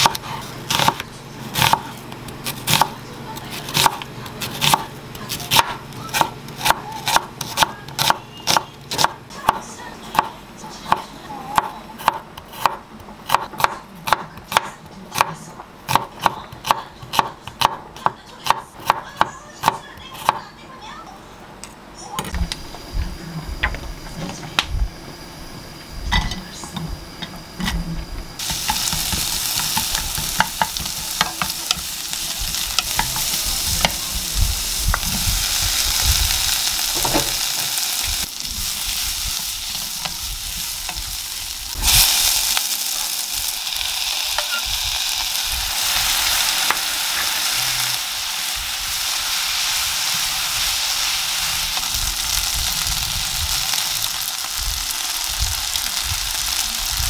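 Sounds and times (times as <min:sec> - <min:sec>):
food sizzling in a frying pan: 0:28.4 - 0:57.0.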